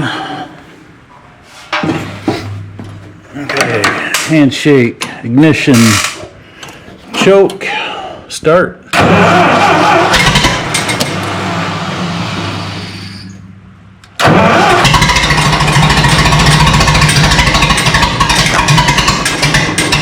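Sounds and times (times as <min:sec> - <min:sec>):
tractor engine starting: 0:08.9 - 0:13.3, 0:14.1 - 0:20.0.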